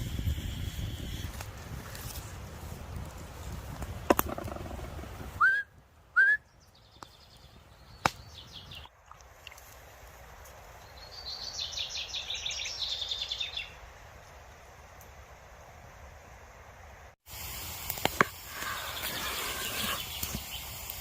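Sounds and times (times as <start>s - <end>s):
birds calling: 6.5s - 9.0s, 18.5s - 20.8s.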